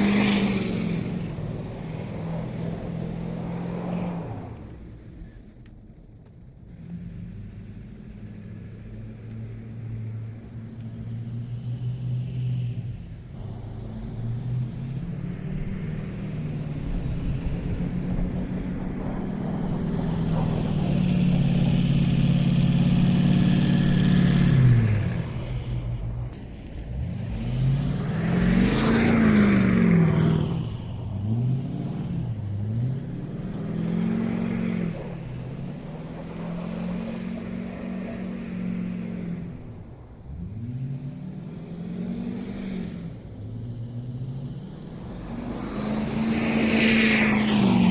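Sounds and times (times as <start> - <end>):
truck engine revving: 13.0 - 47.9.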